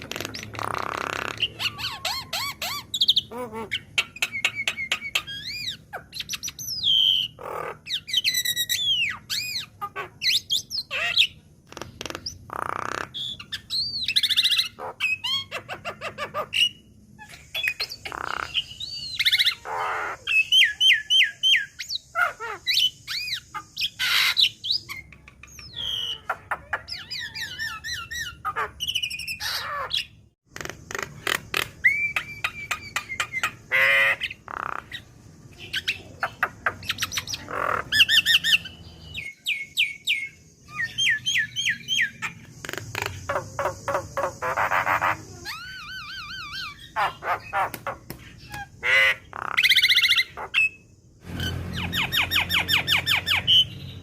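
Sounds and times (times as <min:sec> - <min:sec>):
mynas calling: 0:00.0 - 0:54.0.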